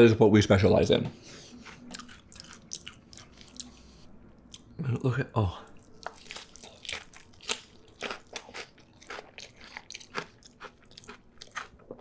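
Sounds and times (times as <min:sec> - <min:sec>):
crunching and chewing snacks: 0:05.8 - 0:12.0.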